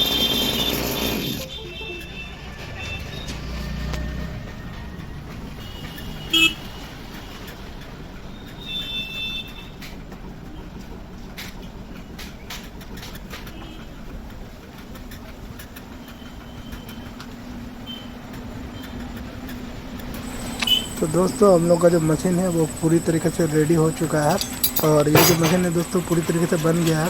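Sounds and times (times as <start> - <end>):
vehicle horn honks: 0.0 - 3.4, 5.6 - 6.8
background traffic noise: 0.0 - 27.0.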